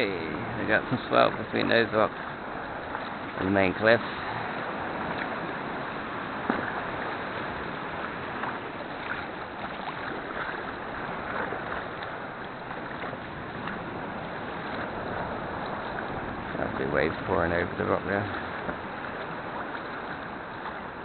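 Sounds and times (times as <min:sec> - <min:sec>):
faint small splashes: 0:00.0 - 0:21.0
sea swell washing and splashing: 0:00.0 - 0:21.0.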